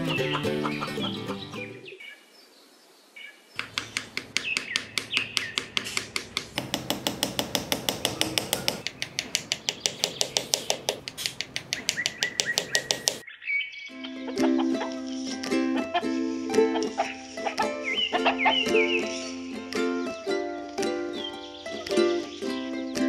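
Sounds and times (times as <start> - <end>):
mallet tapping sticks into sand: 3.6 - 13.2, 14.9 - 15.8, 16.4 - 21.2.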